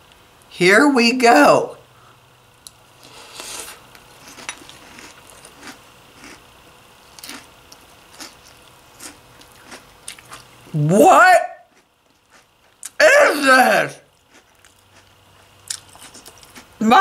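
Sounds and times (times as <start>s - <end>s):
person chewing crunchy cereal: 2.9s - 10.8s, 11.6s - 13.0s, 14.1s - 16.8s.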